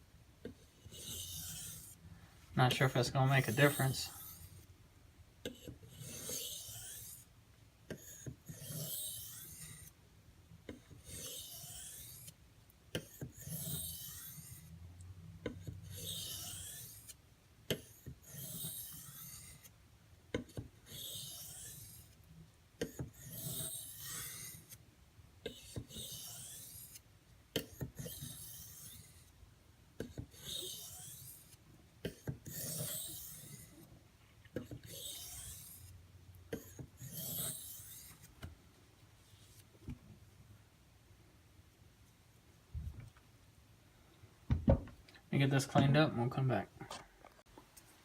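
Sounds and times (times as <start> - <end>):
knife scraping on whetstone: 0.6 - 2.0, 2.8 - 4.7, 5.5 - 7.3, 7.9 - 10.0, 11.0 - 12.4, 13.0 - 14.7, 15.9 - 17.2, 17.8 - 19.7, 20.9 - 22.2, 22.8 - 24.8, 25.5 - 27.0, 27.6 - 29.3, 30.0 - 33.8, 34.6 - 38.3.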